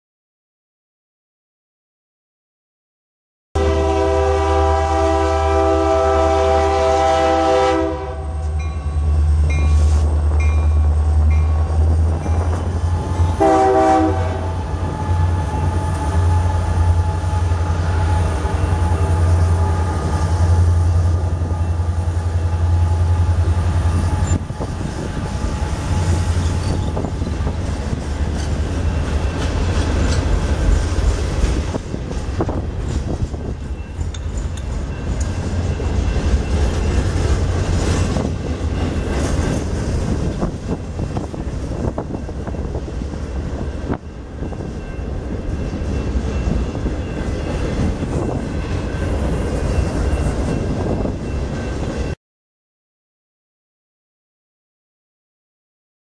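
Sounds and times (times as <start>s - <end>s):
train air horn: 3.6s - 8.6s, 13.3s - 20.6s
locomotive engines rumbling: 3.6s - 52.1s.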